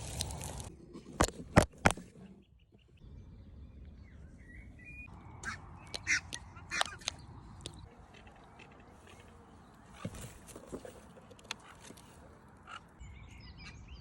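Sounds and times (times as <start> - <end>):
faint outdoor background: 0.0 - 14.0
waterfowl calling: 5.4 - 7.2.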